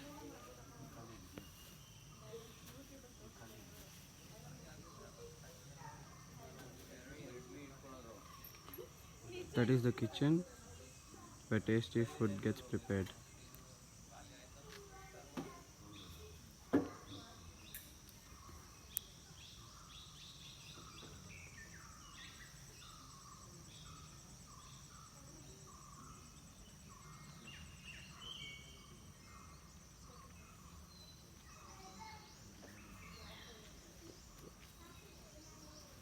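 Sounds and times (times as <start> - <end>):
insect drone: 0.0 - 36.0
bird calls: 14.8 - 36.0.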